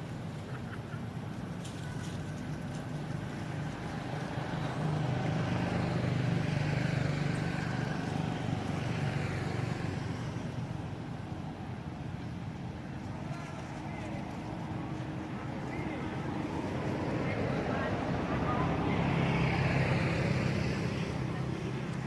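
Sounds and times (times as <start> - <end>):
vehicle engine passing by: 3.3 - 10.6, 15.7 - 22.0.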